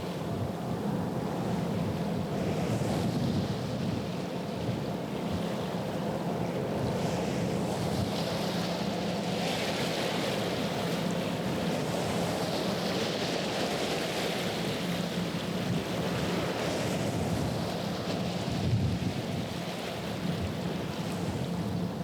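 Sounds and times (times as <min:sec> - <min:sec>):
wind buffeting microphone: 0:15.6 - 0:21.8.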